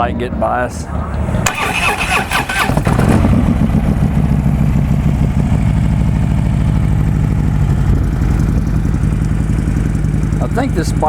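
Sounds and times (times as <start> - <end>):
motorcycle engine idling: 1.5 - 11.0.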